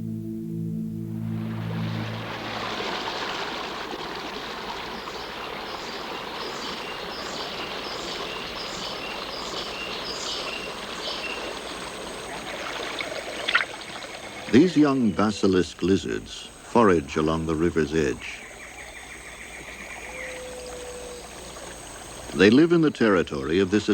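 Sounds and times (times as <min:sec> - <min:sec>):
river water rushing: 0:01.3 - 0:18.6.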